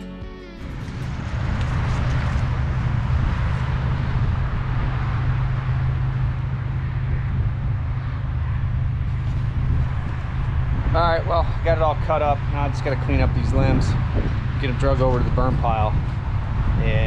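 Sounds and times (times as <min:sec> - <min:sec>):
engine running steadily: 0:00.6 - 0:17.0.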